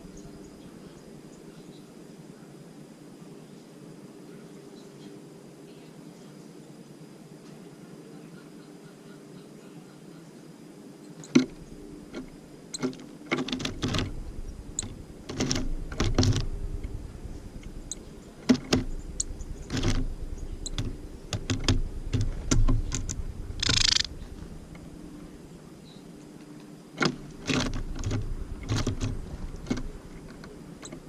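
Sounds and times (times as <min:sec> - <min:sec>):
birds tapping and pecking: 0:11.2 - 0:25.3, 0:26.6 - 0:31.0
wings fluttering: 0:11.3 - 0:25.7, 0:26.4 - 0:31.0.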